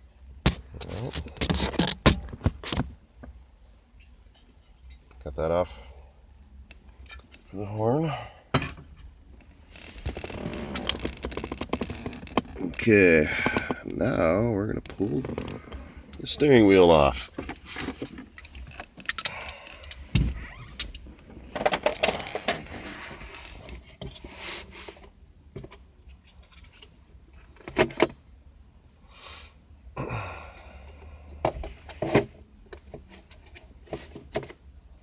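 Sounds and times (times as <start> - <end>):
metal tools and bolts clinking: 27.8 - 28.4.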